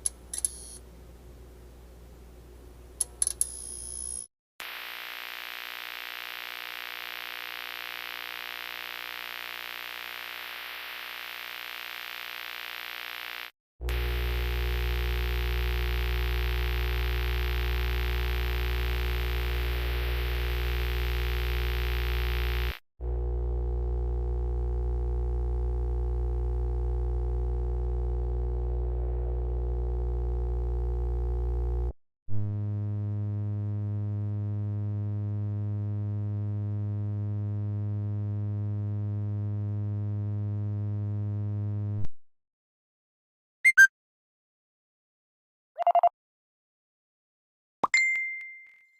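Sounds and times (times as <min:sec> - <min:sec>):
electrical hum: 0:13.3 - 0:31.9.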